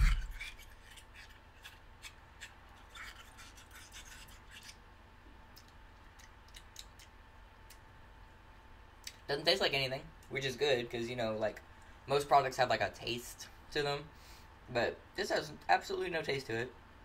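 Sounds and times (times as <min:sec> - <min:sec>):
teeth chewing rubber: 0:05.5 - 0:07.8.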